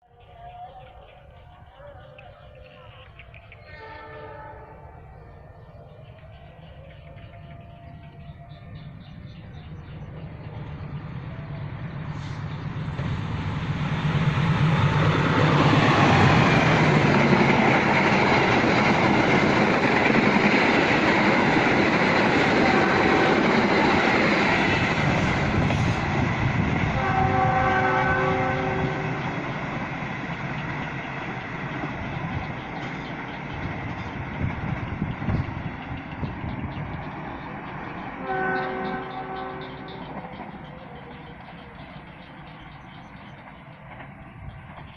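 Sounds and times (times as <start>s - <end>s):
passenger train passing: 0.0s - 44.9s
train horn: 3.6s - 5.4s, 22.4s - 26.2s, 26.8s - 29.4s, 38.2s - 40.3s.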